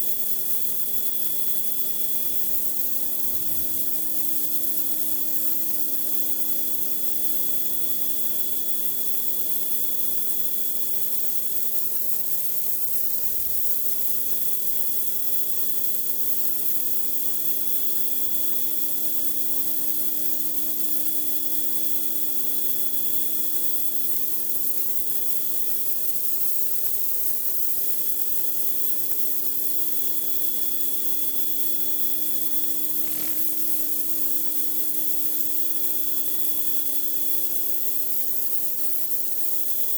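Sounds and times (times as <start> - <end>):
water spray hissing on concrete: 32.6 - 34.7.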